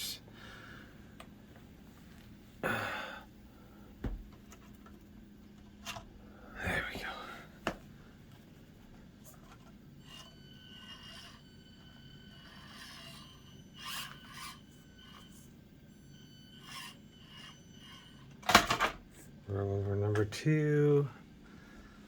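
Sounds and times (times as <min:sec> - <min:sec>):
toy truck scraping obstacles: 0:09.4 - 0:11.5, 0:12.3 - 0:15.5, 0:16.5 - 0:18.2
high-pitched motor whine: 0:09.6 - 0:18.4.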